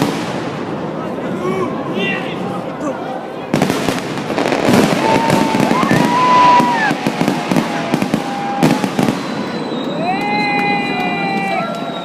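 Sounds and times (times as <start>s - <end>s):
fireworks bangs and crackles: 0.0s - 1.3s, 3.4s - 12.0s
thin whistling tone: 9.1s - 10.4s.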